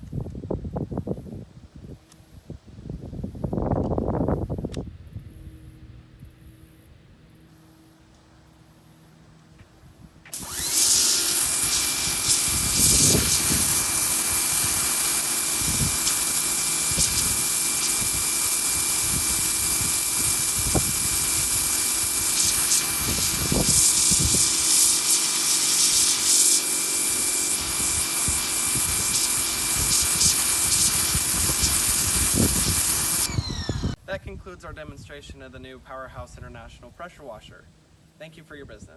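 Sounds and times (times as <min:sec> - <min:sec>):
thin steady whine: 0:01.6 - 0:34.1
pressure washer jet hissing: 0:10.3 - 0:33.9.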